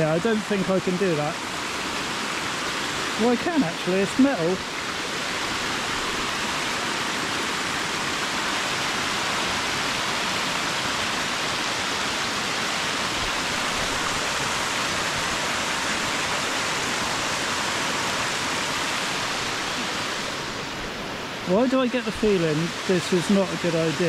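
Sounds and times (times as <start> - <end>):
rushing river water: 0.0 - 24.0.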